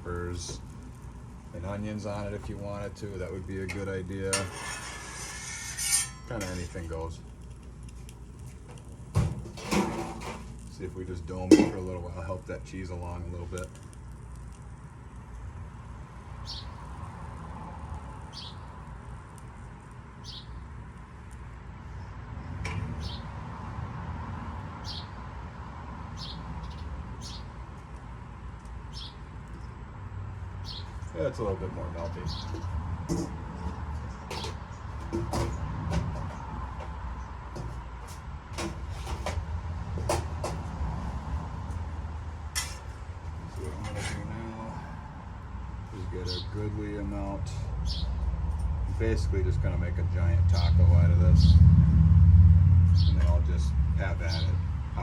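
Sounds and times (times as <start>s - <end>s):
burners rumbling: 0.0s - 55.0s
metal utensils clacking on griddle: 3.6s - 7.0s, 42.5s - 42.9s
bird chirping: 16.4s - 16.8s, 18.3s - 18.7s, 20.2s - 20.6s, 23.0s - 23.3s, 24.8s - 25.2s, 26.2s - 27.6s, 28.9s - 29.8s, 30.6s - 31.2s, 32.2s - 32.7s, 46.0s - 46.6s, 47.8s - 48.2s, 50.5s - 51.6s, 52.9s - 53.4s
steady low rumble: 44.4s - 55.0s.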